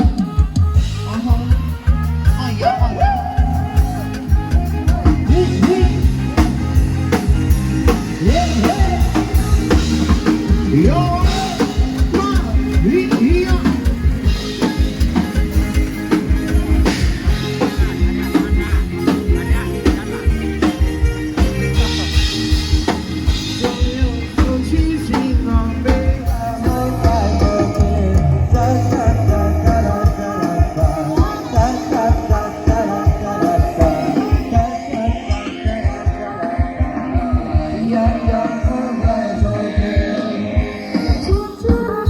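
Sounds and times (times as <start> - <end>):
bass and guitar: 0.0 - 42.0
heavy drum beat: 0.0 - 42.0
person singing: 0.0 - 42.0.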